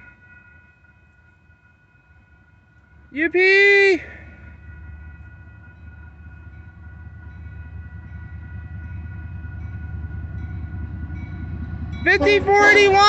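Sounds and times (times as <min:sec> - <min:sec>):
crossing warning bells ringing: 0:00.0 - 0:13.0
diesel locomotive rumble: 0:00.0 - 0:13.0.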